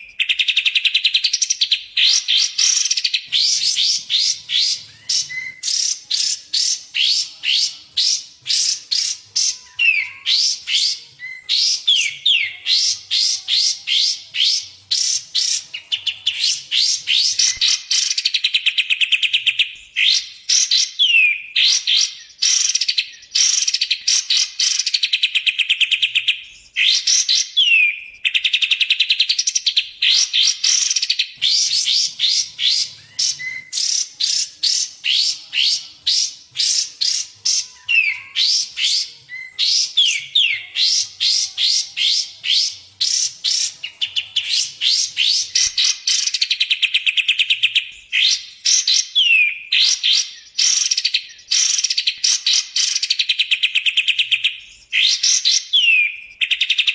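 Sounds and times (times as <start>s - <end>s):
bulbul song trills and whistles: 0.0s - 56.9s.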